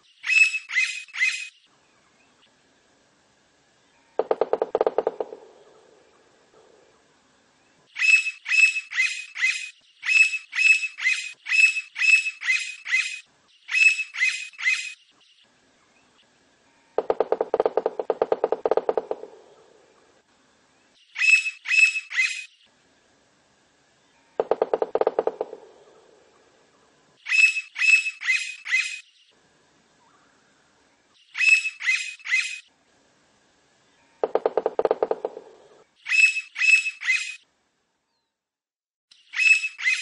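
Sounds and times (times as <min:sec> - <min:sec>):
woodpecker sharp high calls: 0:00.2 - 0:01.6, 0:04.2 - 0:05.6, 0:08.0 - 0:15.0, 0:21.2 - 0:22.5, 0:24.4 - 0:26.4, 0:27.2 - 0:29.1, 0:31.3 - 0:32.7, 0:34.2 - 0:37.4, 0:39.2 - 0:40.0
woodpecker rapid rattle: 0:04.2 - 0:05.8, 0:17.0 - 0:19.7, 0:24.4 - 0:26.0, 0:34.2 - 0:35.7.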